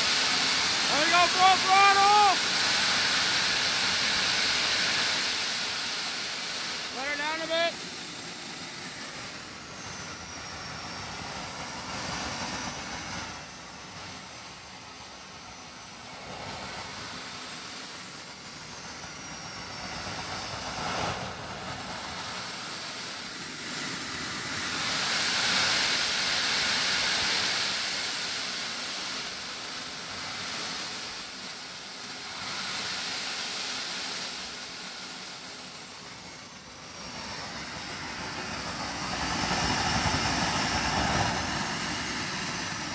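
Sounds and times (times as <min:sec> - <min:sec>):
steady rushing hiss: 0:00.0 - 0:28.6
jet turbine engine whine: 0:00.0 - 0:42.9.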